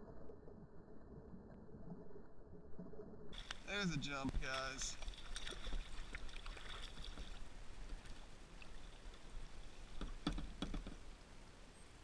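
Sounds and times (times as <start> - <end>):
fishing tackle clicking and knocking: 10.0 - 11.0.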